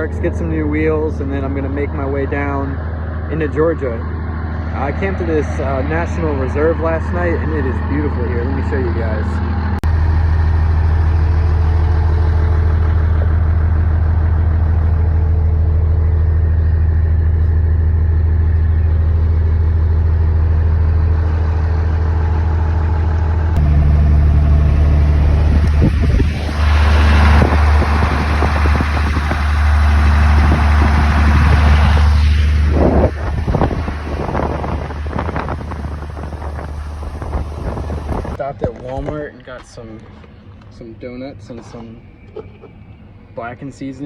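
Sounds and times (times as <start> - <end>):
truck engine driving: 0.0 - 43.9
rushing wind: 23.5 - 38.4.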